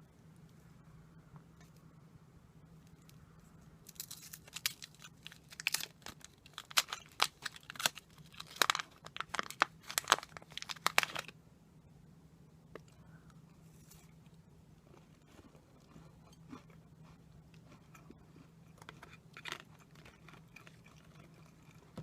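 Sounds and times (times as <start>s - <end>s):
wrapper crackling and tearing: 3.9s - 11.3s.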